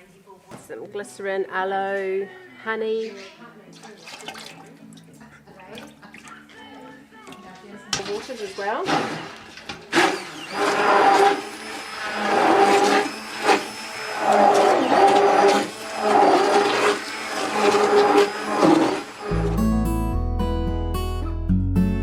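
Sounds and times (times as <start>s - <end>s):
electric mixer blending liquid: 8.2s - 19.5s.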